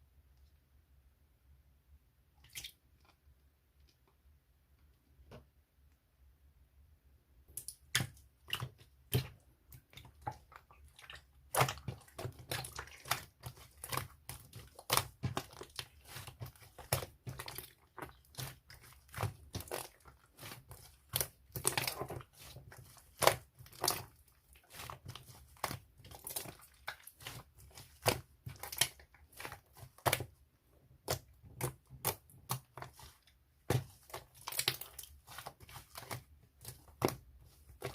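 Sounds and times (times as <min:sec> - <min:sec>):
slime crackling and popping: 0:33.7 - 0:37.9.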